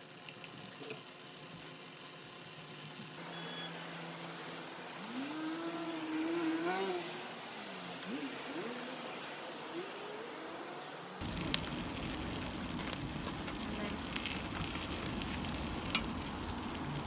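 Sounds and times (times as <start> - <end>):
food sizzling in a pan: 0.0 - 3.2, 11.2 - 17.0.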